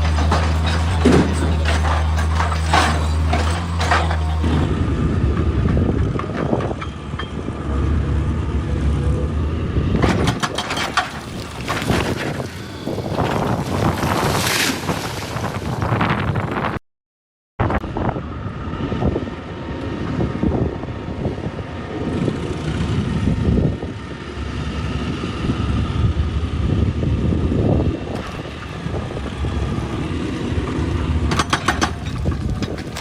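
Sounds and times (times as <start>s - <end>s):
excavator diesel engine running: 0.0s - 14.1s.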